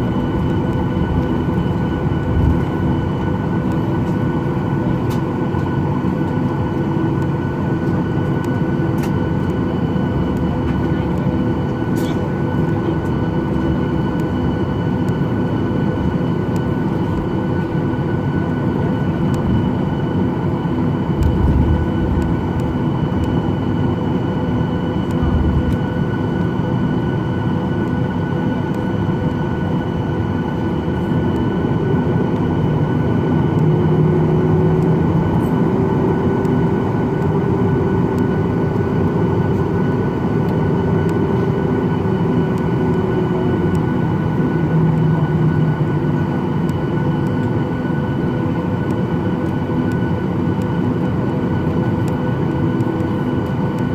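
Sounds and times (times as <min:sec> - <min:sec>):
low hum: 0:00.0 - 0:05.2, 0:19.0 - 0:27.9
jet engines whining: 0:00.0 - 0:53.9.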